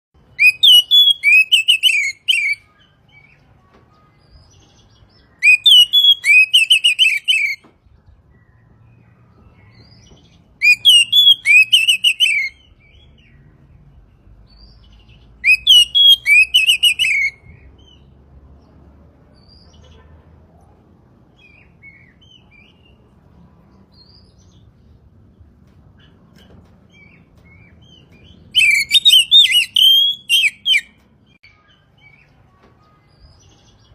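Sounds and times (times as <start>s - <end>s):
bird singing: 0.2s - 18.1s, 26.0s - 33.9s.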